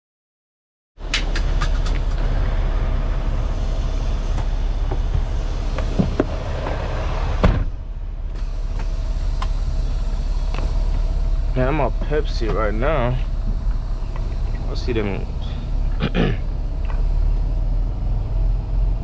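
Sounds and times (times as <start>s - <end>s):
truck engine rumble: 1.0s - 19.0s
rattles and clicks: 1.1s - 2.6s.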